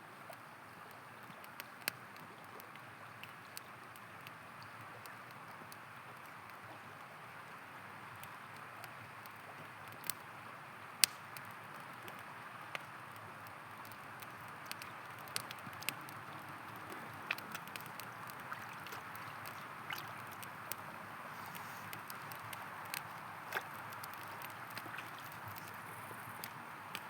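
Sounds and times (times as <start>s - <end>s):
campfire crackling: 0.1s - 27.0s
river running: 5.8s - 27.0s.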